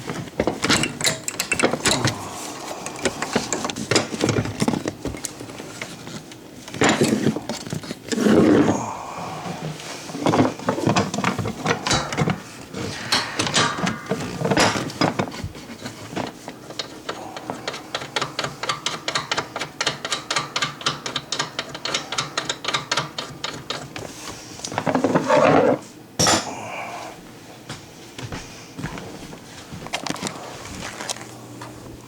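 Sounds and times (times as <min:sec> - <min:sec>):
hand tools clicking on metal: 0:00.4 - 0:05.3, 0:11.0 - 0:15.2, 0:15.8 - 0:24.0
scraping clatter: 0:09.7 - 0:17.1.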